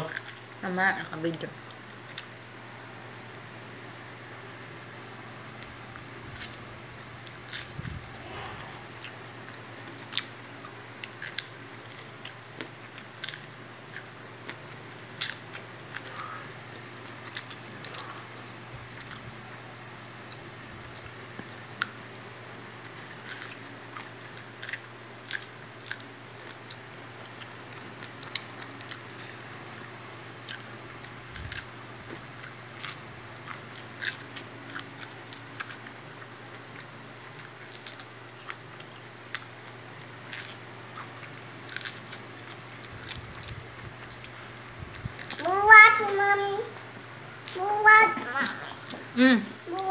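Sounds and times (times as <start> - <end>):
steady low hum: 0.0 - 49.9
toddler chewing and smacking: 7.2 - 16.4, 17.1 - 19.4, 22.8 - 46.8, 47.4 - 49.9.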